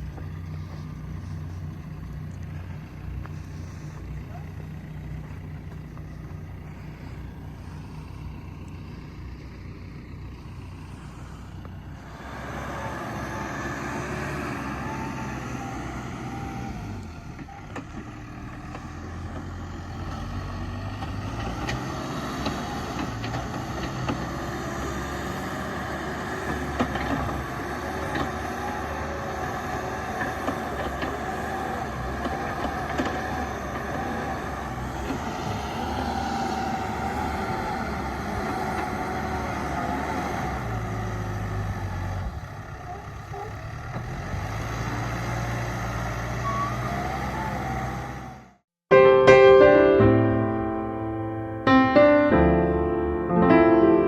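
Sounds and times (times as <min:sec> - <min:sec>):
excavator engine running: 0:00.0 - 0:48.4.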